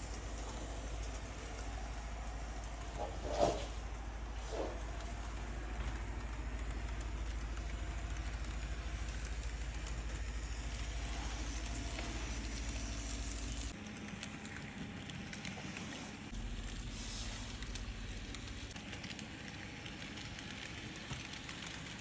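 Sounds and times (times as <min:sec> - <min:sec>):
model train running: 0:05.4 - 0:13.6.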